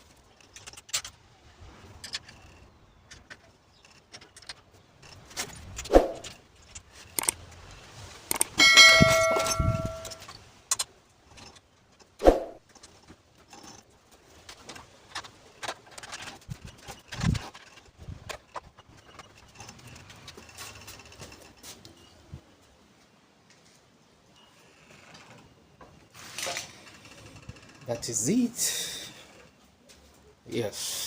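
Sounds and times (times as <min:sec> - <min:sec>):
metal parts and tools clinking: 0:01.9 - 0:07.5, 0:08.3 - 0:22.1
ringing metallic clang: 0:08.6 - 0:10.2.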